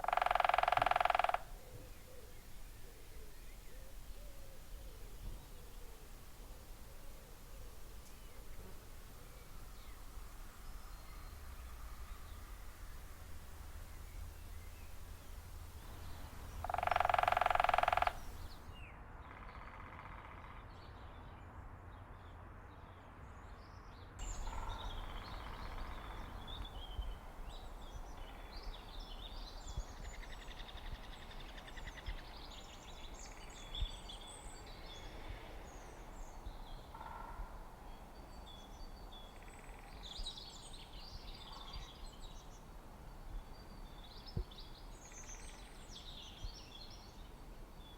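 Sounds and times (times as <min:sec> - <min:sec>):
loud pitched bird call: 0:00.0 - 0:02.3, 0:16.6 - 0:18.6
birds chirping: 0:00.0 - 0:18.8
outdoor background noise: 0:00.0 - 0:47.9.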